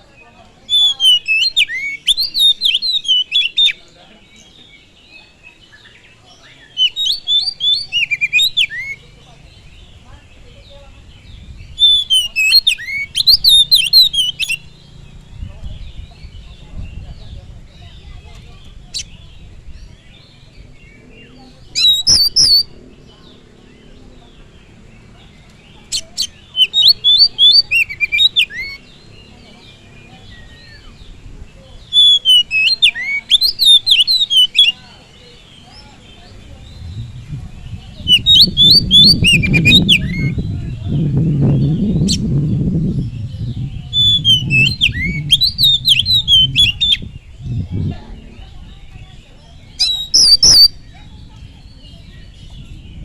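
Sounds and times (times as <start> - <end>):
faint chirping of other birds: 0.0 - 53.0
songbird whistled song: 0.0 - 53.0
bird singing warbled notes: 20.5 - 23.9, 35.6 - 53.0.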